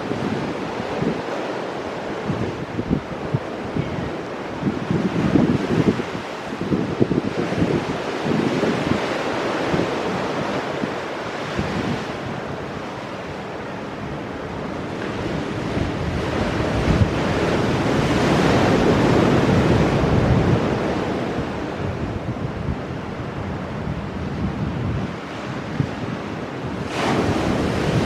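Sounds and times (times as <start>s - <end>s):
wind buffeting microphone: 0.0s - 28.0s
surf breaking against rocks: 26.7s - 28.0s.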